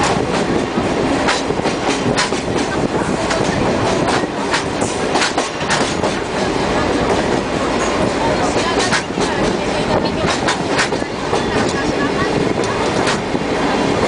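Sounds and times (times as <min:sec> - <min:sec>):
train wheels rumbling on rails: 0:00.0 - 0:14.0
wheels clacking over rail joints: 0:00.0 - 0:14.0.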